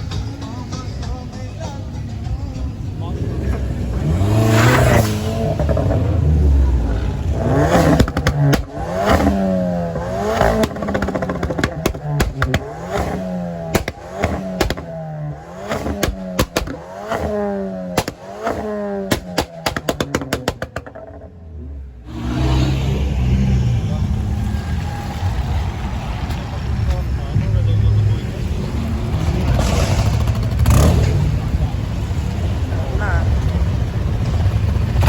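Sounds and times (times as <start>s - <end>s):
car engine revving: 0.0s - 35.0s
exhaust pops and cracks: 7.7s - 21.3s.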